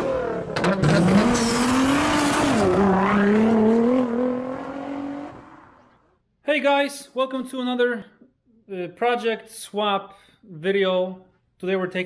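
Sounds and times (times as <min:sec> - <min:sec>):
car engine revving: 0:00.0 - 0:06.1.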